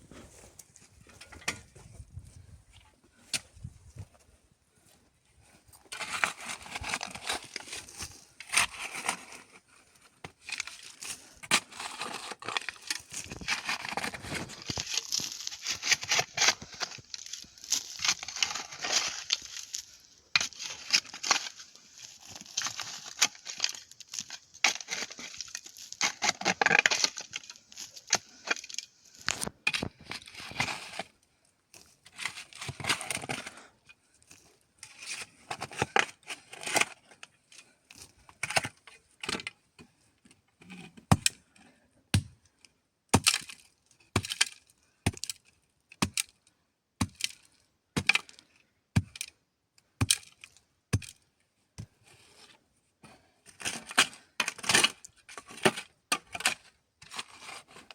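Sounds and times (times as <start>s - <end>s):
crinkling and rustling: 5.5s - 39.6s.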